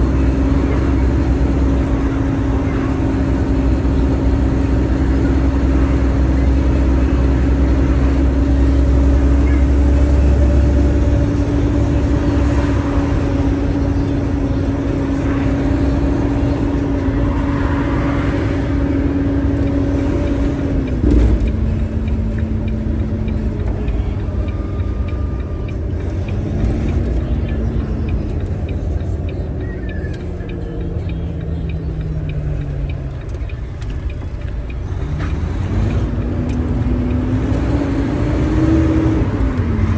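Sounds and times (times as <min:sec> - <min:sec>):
road rumble: 0:00.0 - 0:39.9
truck engine: 0:00.0 - 0:39.9.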